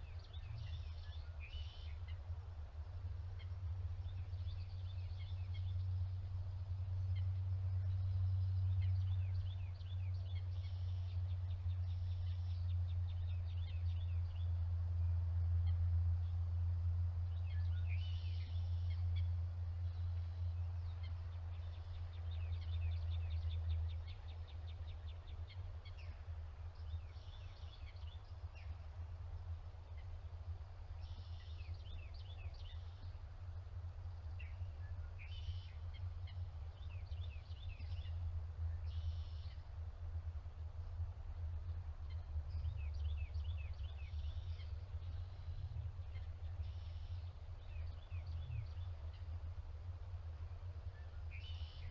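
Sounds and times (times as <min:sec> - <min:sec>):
low rumble: 0:36.0 - 0:51.9
birds chirping: 0:50.3 - 0:51.9.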